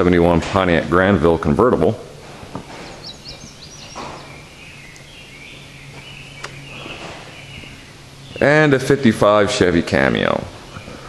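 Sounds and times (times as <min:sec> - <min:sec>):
low hum: 0:00.0 - 0:11.0
faint high bird chirps: 0:02.9 - 0:08.6.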